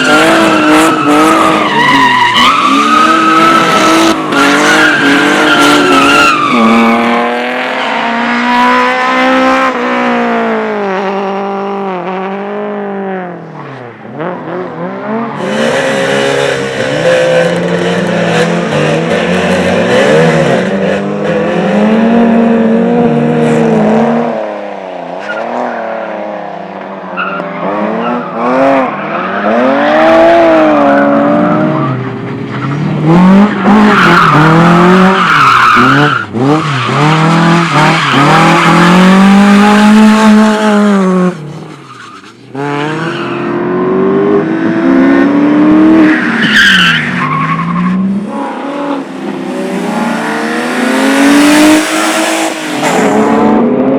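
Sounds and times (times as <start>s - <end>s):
race car engine revving: 27.2s - 41.7s, 42.6s - 53.9s.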